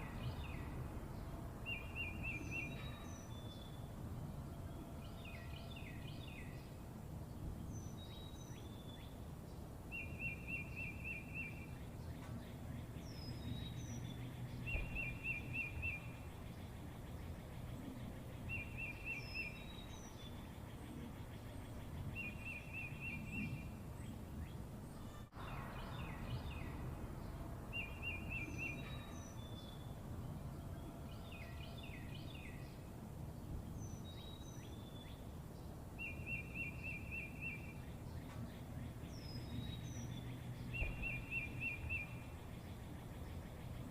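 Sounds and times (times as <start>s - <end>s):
high bird chirps: 39.3s - 42.3s.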